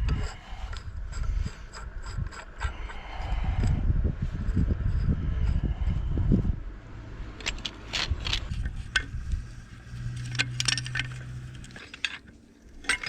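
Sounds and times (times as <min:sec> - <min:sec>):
low steady hum: 0:00.0 - 0:13.0
metal tools clinking and scraping: 0:07.4 - 0:13.0.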